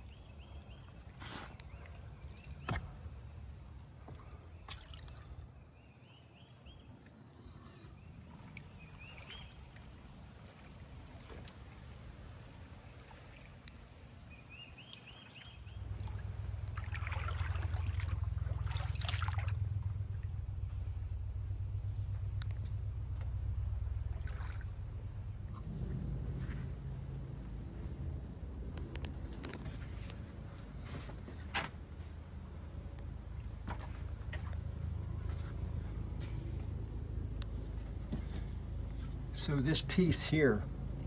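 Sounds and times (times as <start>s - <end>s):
paddle dipping into water: 0.1s - 5.6s, 6.9s - 20.4s, 24.1s - 27.9s
water dripping and splashing: 0.8s - 5.6s, 8.2s - 20.6s, 24.0s - 27.9s
steady low rumble: 15.6s - 41.0s.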